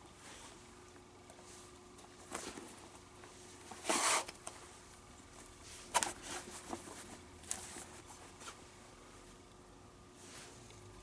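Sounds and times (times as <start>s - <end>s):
leather glove rubbing and scraping: 3.7s - 4.4s.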